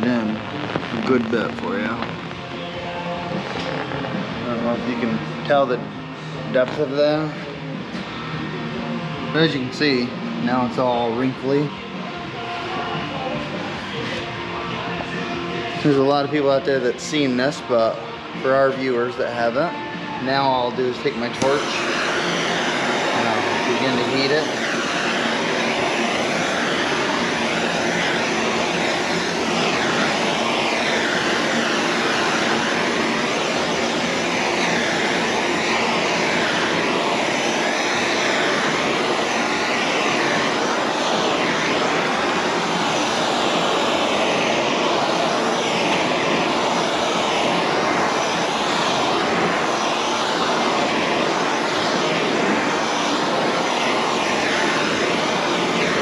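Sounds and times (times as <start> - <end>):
heat gun blowing air: 0.0 - 2.4, 3.3 - 5.8, 20.3 - 56.0.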